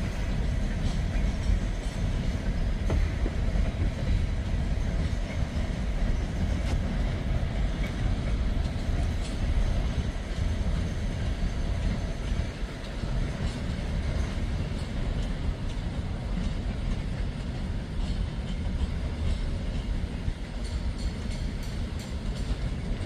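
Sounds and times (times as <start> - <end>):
freight train rumbling: 0.0 - 23.0
sharp clicks from train wheels: 0.0 - 23.0.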